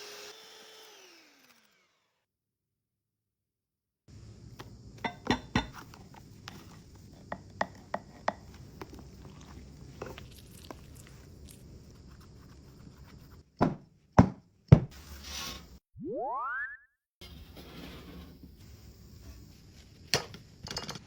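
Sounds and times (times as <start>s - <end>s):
knife chopping on cutting board: 13.6s - 15.0s.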